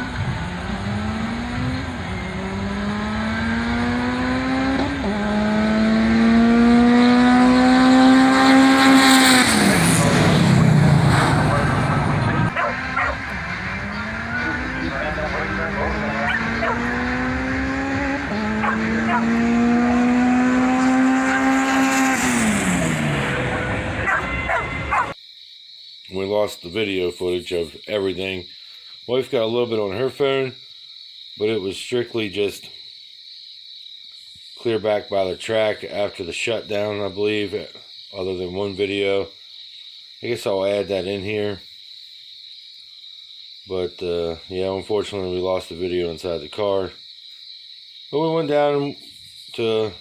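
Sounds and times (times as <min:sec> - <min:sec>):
car engine accelerating: 0:00.0 - 0:25.2.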